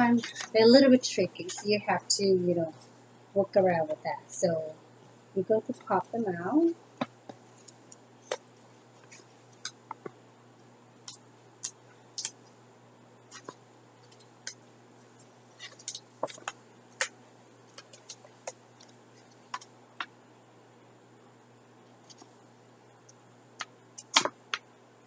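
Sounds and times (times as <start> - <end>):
faint room hiss: 0.0 - 25.0
sharp wooden click: 23.6 - 24.6
wooden puzzle pieces snapping: 23.6 - 24.6.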